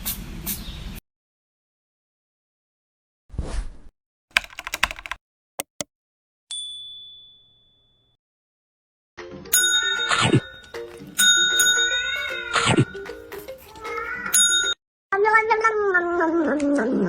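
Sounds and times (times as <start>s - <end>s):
quick clicks: 4.3s - 5.9s
music: 10.0s - 14.4s.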